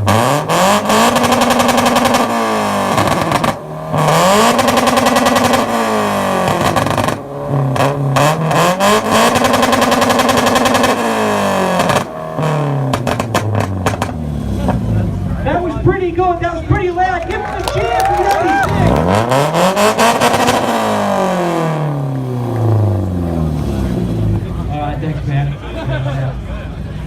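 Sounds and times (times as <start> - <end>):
exhaust pops: 0.0 - 15.0
car engine revving: 0.0 - 15.9, 18.6 - 27.0.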